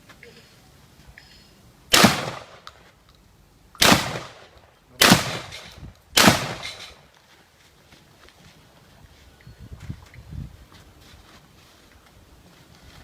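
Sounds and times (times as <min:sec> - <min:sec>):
gunshots with echo: 0:01.9 - 0:02.7, 0:03.8 - 0:07.0.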